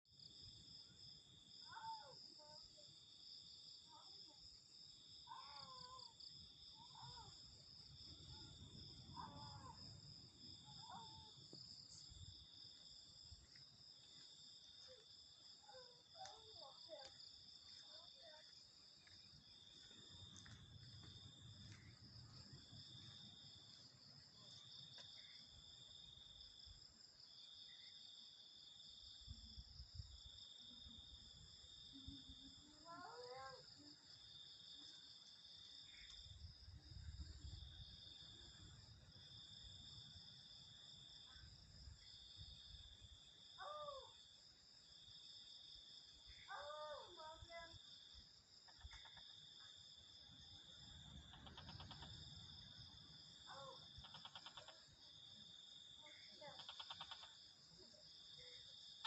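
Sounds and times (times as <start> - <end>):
high insect trill: 0.1 - 59.0
insects chirring: 0.1 - 59.0
faint wavering calls: 51.3 - 52.2, 53.5 - 54.8.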